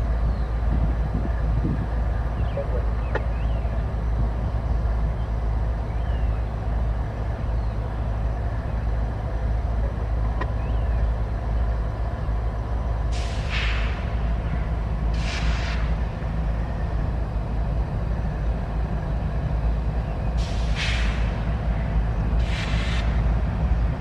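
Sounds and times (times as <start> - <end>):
freight train rumbling past: 0.0 - 24.0
short hiss: 13.1 - 14.1, 15.2 - 15.9, 20.4 - 21.3, 22.4 - 23.1.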